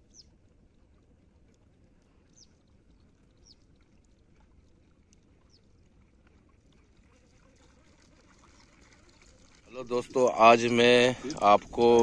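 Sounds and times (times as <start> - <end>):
small bird chirping: 0.1 - 0.3.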